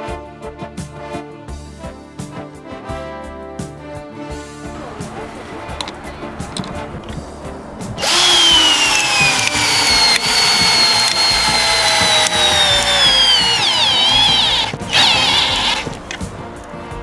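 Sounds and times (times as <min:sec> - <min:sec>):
cordless drill motor whine: 0:08.0 - 0:16.2.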